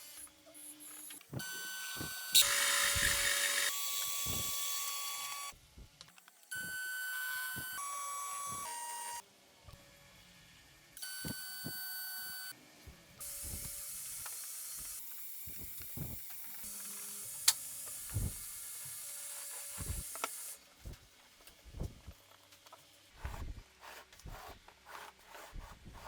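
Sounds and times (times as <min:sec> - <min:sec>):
power tool whine: 0:01.3 - 0:05.5.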